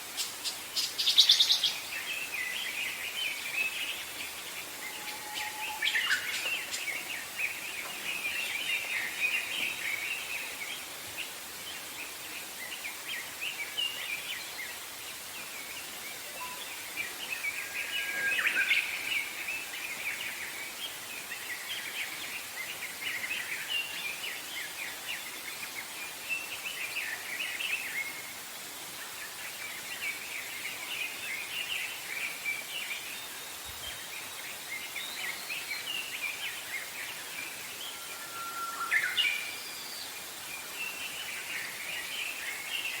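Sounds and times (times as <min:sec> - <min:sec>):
songbirds chirping: 0:00.0 - 0:43.0
steady background hiss: 0:00.0 - 0:43.0.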